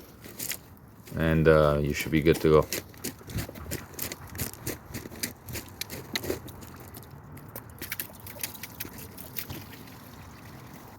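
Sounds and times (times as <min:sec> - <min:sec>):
crisp clicks and crackles: 0:03.9 - 0:09.6.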